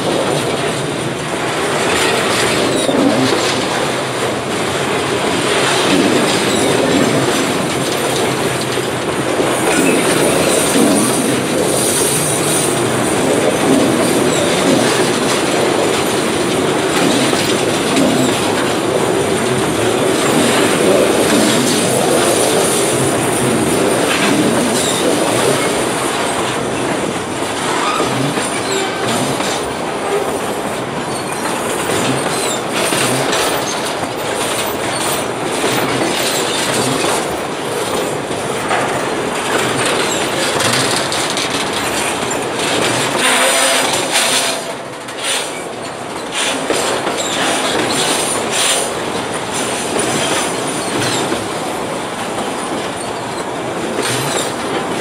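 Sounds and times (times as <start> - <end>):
freight train wheels rumbling: 0.0 - 55.0
wheel squeal: 6.3 - 7.2, 16.9 - 26.9, 27.6 - 30.4, 31.0 - 38.2, 41.8 - 48.9, 49.8 - 51.4, 52.6 - 54.6.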